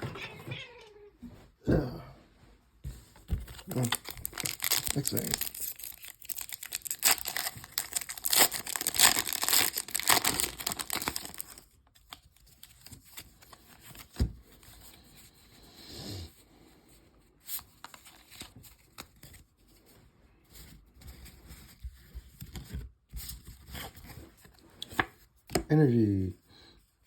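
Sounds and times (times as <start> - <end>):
foil wrapper crinkling and tearing: 3.5 - 14.1.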